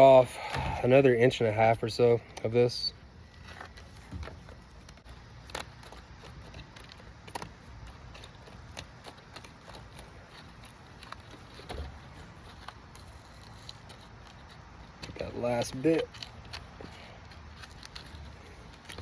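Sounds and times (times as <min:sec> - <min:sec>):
material being cut by hand: 0:04.8 - 0:19.0.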